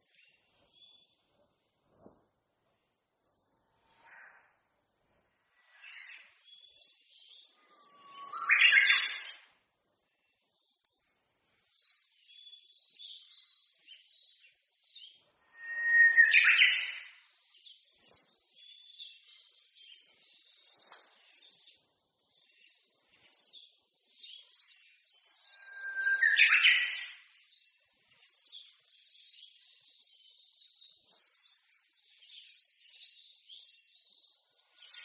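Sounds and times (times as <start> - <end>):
songbirds chirping: 0.0 - 35.0
bird singing whistled song: 7.7 - 9.4, 15.0 - 19.2, 23.6 - 27.8.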